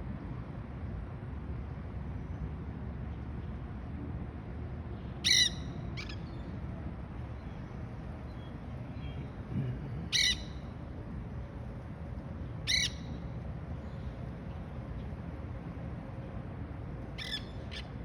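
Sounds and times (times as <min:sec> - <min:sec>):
low background rumble: 0:03.8 - 0:18.0
parakeets squawking: 0:10.1 - 0:10.6, 0:17.2 - 0:17.9.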